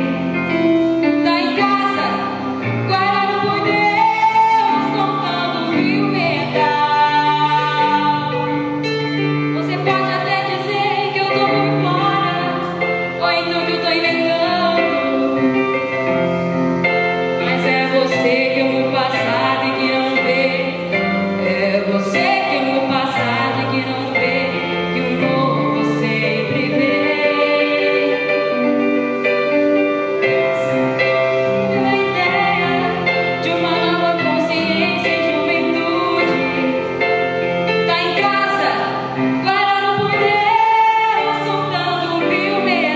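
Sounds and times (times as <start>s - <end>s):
instrumental accompaniment: 0.0s - 42.9s
woman singing: 1.1s - 8.7s, 9.6s - 15.8s, 17.4s - 28.7s, 31.7s - 37.2s, 37.8s - 42.9s.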